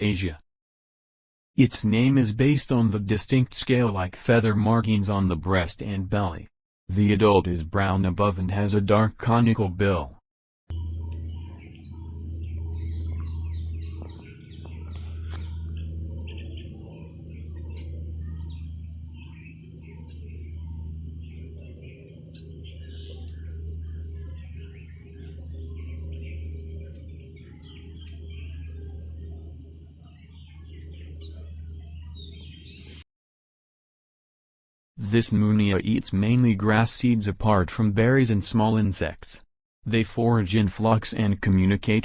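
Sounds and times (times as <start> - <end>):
birds chirping: 0.0 - 0.4, 1.6 - 33.0
low rumble: 10.7 - 29.5
high insect-like drone: 10.7 - 32.6.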